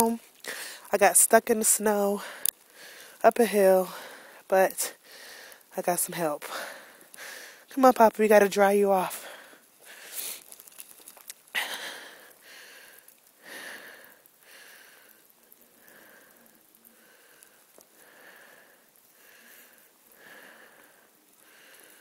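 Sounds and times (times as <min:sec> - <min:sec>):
rustling: 0:09.8 - 0:11.6.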